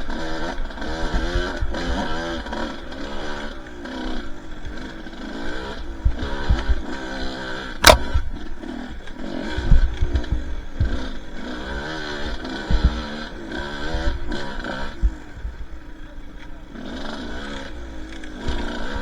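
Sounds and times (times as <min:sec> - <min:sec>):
sharp click: 0:07.8 - 0:08.2.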